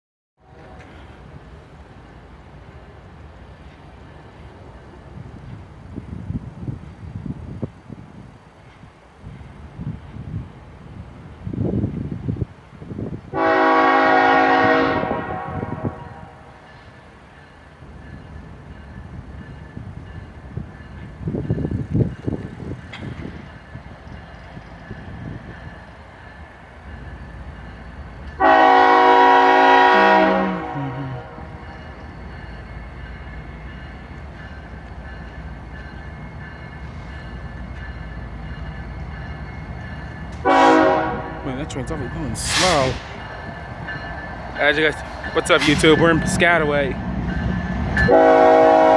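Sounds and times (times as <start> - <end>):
freight train rumbling: 0.4 - 48.9
locomotive air horn blast: 13.3 - 16.6, 28.4 - 31.6, 40.4 - 41.4, 42.3 - 43.2, 48.1 - 48.9.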